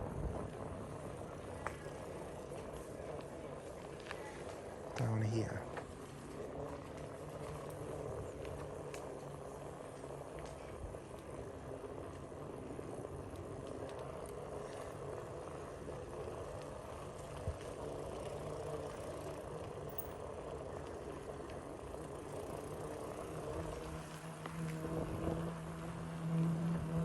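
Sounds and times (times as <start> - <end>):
vehicle engine humming: 0.0 - 27.0.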